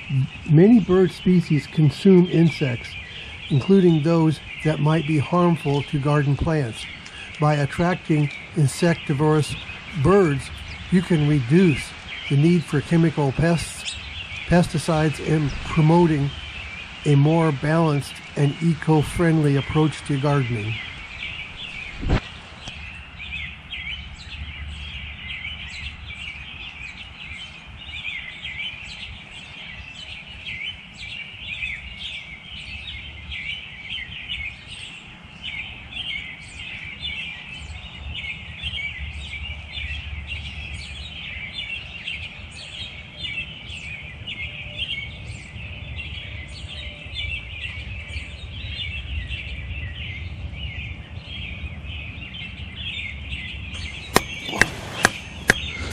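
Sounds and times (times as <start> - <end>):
small birds chirping: 0.0 - 55.9
sharp knock: 54.1 - 55.7.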